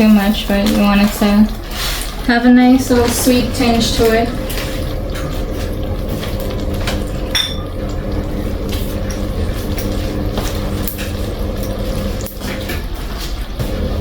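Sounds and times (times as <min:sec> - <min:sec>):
sauce sloshing in pot: 0:00.0 - 0:14.0
steady low hum: 0:02.6 - 0:14.0
spoon clinking against pot: 0:07.3 - 0:07.6.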